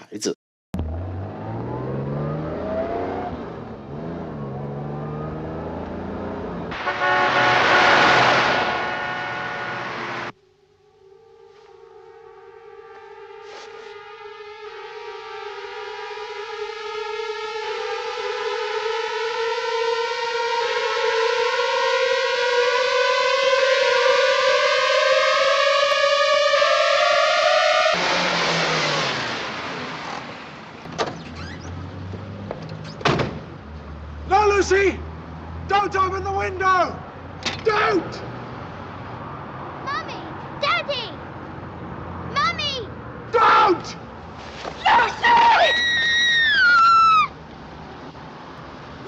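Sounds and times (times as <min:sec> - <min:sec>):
car engine revving: 0:00.8 - 0:10.4, 0:27.8 - 0:36.3
rising suspense drone: 0:00.8 - 0:30.9.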